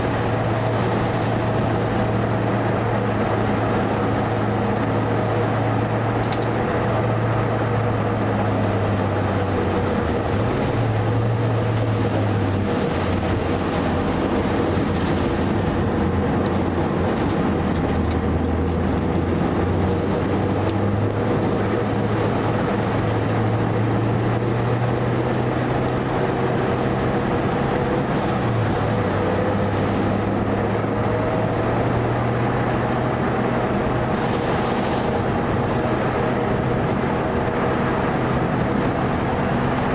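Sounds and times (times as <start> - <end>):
turbocharged car engine running hard: 0.0 - 39.9.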